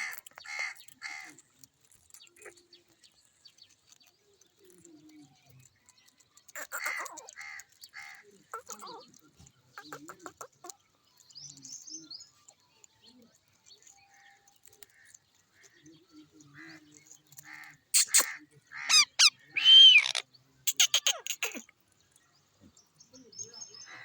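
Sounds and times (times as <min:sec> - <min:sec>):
parrot chirping and chattering: 0:00.0 - 0:03.0, 0:06.0 - 0:09.2, 0:09.8 - 0:10.8, 0:17.4 - 0:21.8
parrot squawking: 0:18.0 - 0:21.6.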